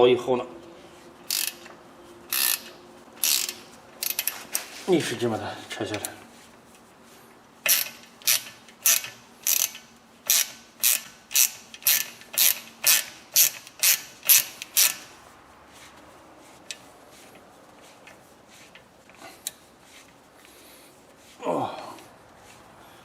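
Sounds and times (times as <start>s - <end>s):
ratchet clicking: 1.3s - 4.7s, 7.6s - 15.1s.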